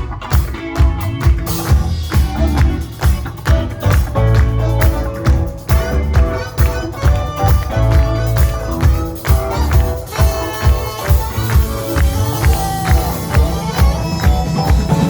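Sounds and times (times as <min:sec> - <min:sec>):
drums steady beat: 0:00.0 - 0:15.0
heavy bass line: 0:00.0 - 0:15.0
sustained pitched notes: 0:01.5 - 0:15.0.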